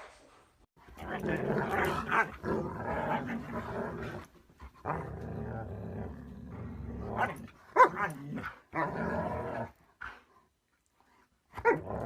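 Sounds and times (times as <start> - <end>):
dog growling: 0.9 - 9.8
dog barking: 7.2 - 8.1.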